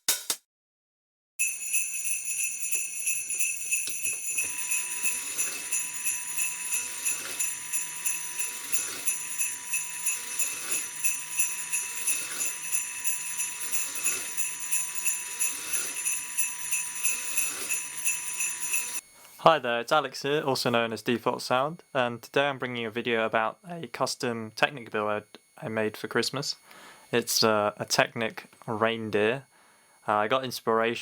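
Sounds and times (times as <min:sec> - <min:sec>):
sleigh bells jingling: 0:01.4 - 0:19.0.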